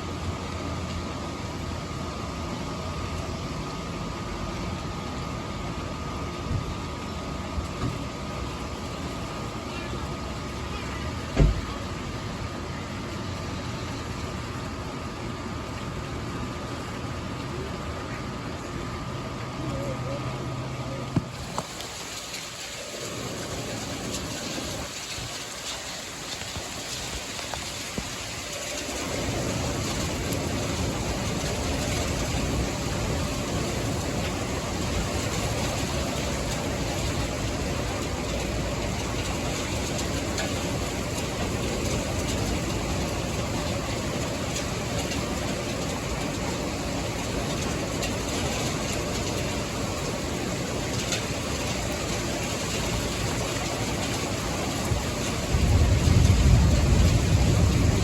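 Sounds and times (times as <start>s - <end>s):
heavy rain: 0.0s - 58.0s
strong wind: 23.0s - 58.0s.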